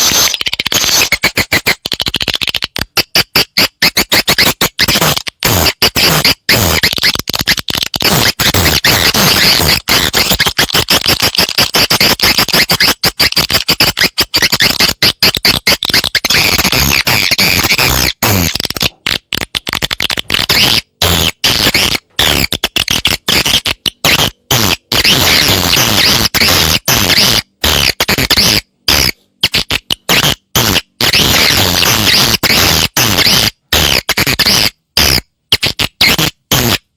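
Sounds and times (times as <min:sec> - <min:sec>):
rapid high bird twittering: 0:00.0 - 0:02.7.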